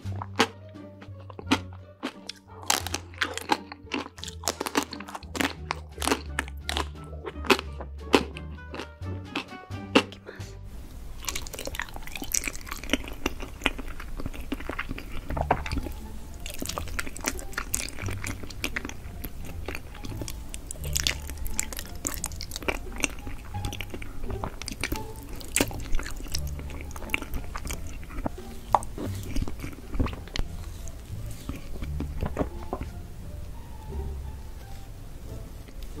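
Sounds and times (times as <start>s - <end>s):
person chewing food: 0.0s - 34.9s
crunching clicks: 1.2s - 8.9s.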